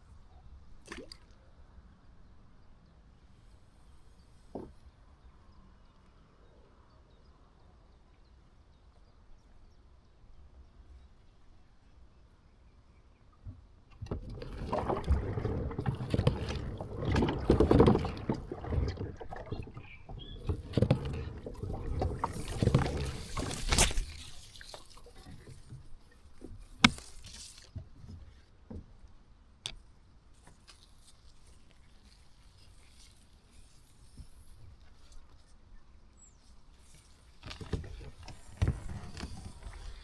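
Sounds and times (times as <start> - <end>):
paddle splashing water: 0.7 - 1.5, 13.9 - 40.0.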